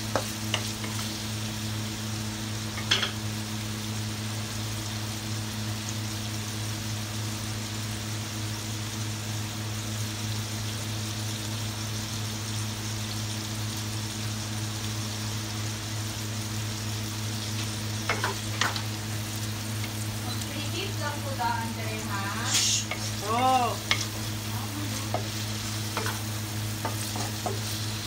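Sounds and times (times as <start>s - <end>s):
wooden spatula scraping a wok: 0.0s - 1.2s, 22.0s - 28.0s
food sizzling in a wok: 0.0s - 28.0s.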